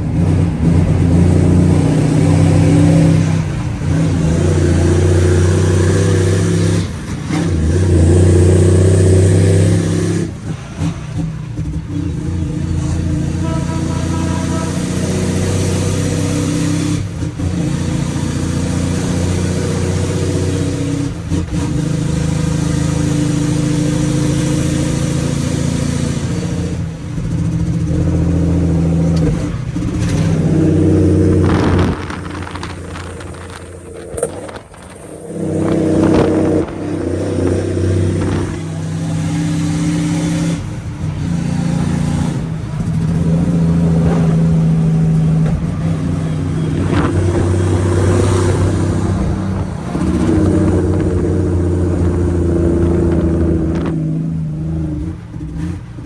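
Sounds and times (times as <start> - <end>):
diesel truck engine under load: 0.0 - 56.0.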